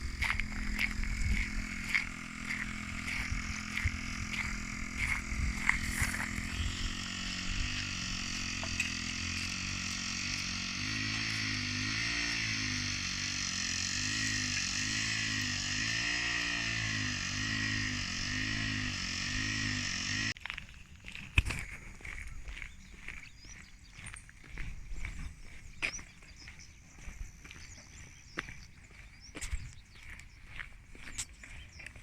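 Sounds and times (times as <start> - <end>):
engine humming: 0.0 - 20.4.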